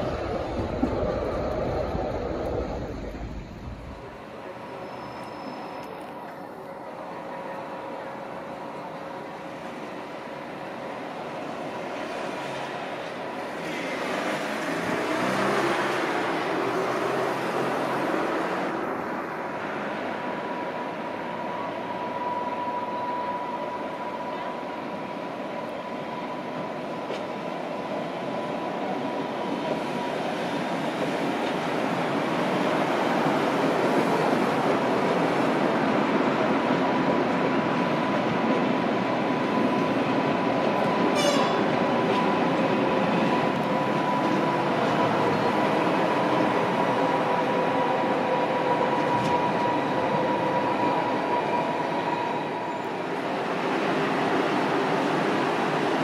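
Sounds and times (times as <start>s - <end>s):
train rolling past: 0.0s - 56.0s
brief squeak: 4.7s - 6.0s.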